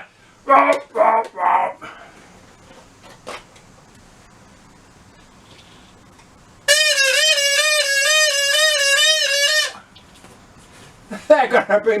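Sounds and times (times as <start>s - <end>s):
reedy wind instrument note: 6.7s - 9.9s.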